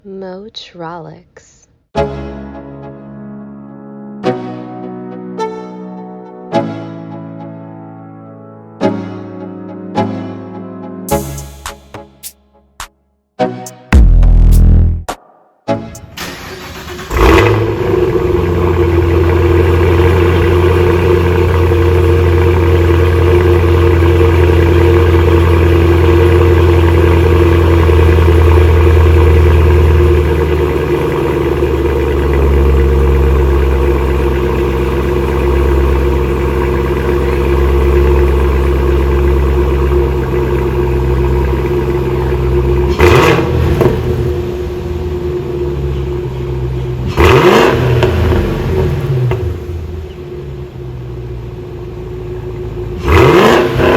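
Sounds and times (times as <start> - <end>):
car engine starting and idling: 15.8 - 53.9.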